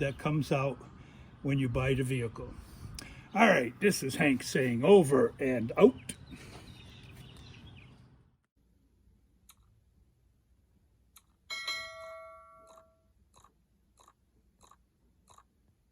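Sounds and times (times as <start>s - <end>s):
ringing chime: 11.5s - 13.0s.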